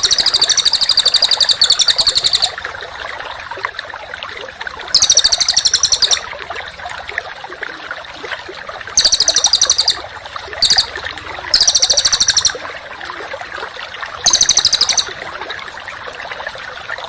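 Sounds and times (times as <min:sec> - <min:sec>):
scattered bird chirps: 0:00.0 - 0:02.6, 0:05.0 - 0:06.2, 0:09.0 - 0:10.0, 0:10.6 - 0:10.9, 0:11.5 - 0:12.6, 0:14.3 - 0:15.1
songbird buzzing trills: 0:00.0 - 0:02.6, 0:05.0 - 0:06.2, 0:09.0 - 0:10.0, 0:10.6 - 0:10.9, 0:11.6 - 0:12.6, 0:14.3 - 0:15.1.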